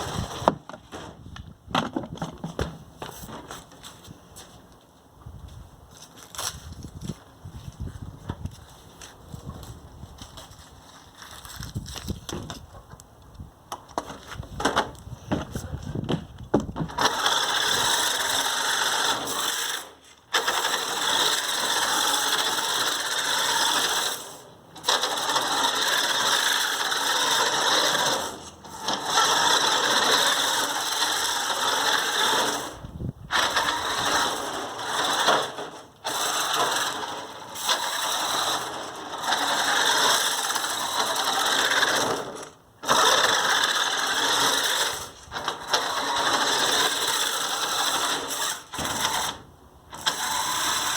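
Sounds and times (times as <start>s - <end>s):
toy car motor and gears whirring: 16.9s - 50.9s.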